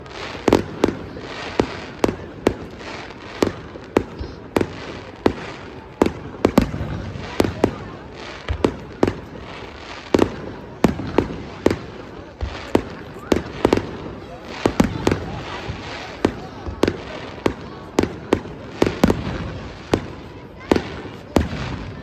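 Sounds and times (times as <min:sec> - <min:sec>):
fireworks bangs: 0:00.0 - 0:22.0.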